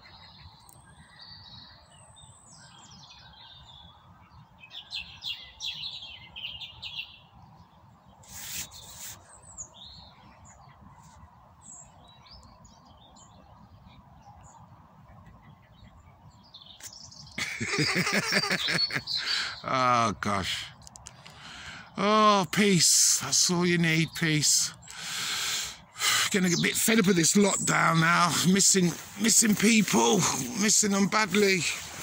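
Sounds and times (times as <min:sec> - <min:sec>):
low rumble of wind: 0:00.0 - 0:08.2, 0:09.2 - 0:17.4
songbirds chirping: 0:00.0 - 0:32.0.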